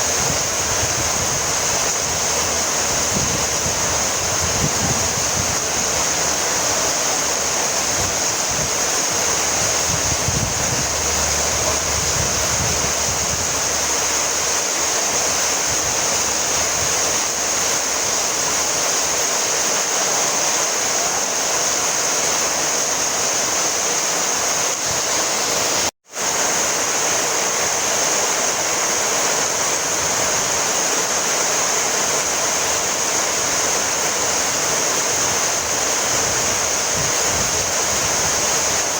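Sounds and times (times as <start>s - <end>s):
low rumbling: 0.0s - 14.6s
heavy rain falling: 0.0s - 38.9s.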